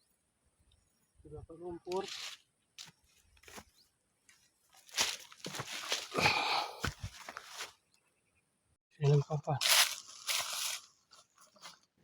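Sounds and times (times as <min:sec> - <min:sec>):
net rustling and crunching: 0:09.6 - 0:10.9.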